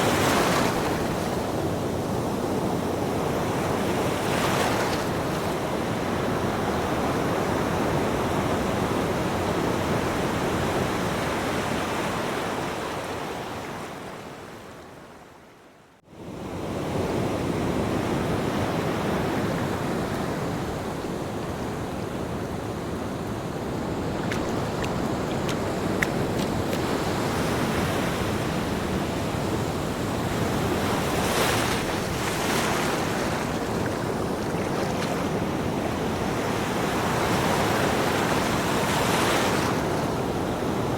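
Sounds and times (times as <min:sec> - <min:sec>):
waves breaking: 0:23.4 - 0:40.9.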